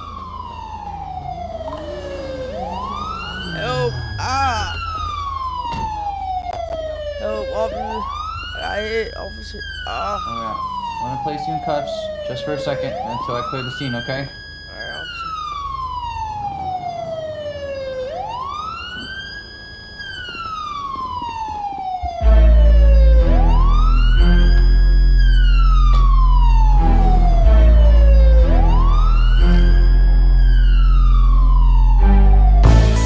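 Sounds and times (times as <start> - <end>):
police siren wailing: 0.0 - 33.0
loud music with heavy bass: 32.6 - 33.0.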